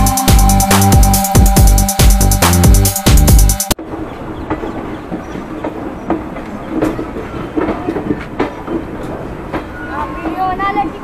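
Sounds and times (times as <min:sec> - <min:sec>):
train wheels clickety-clack: 0:03.9 - 0:11.0.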